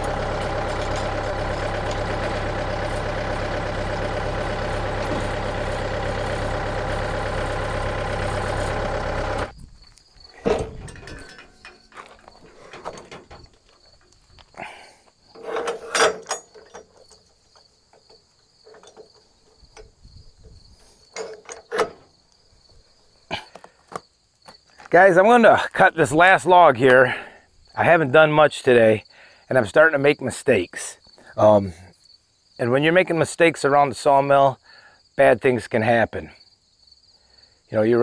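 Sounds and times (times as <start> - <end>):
engine running: 0.0 - 9.5, 10.4 - 13.6
equipment clunking: 0.0 - 9.5, 10.3 - 22.2
crickets chirping: 0.1 - 38.0.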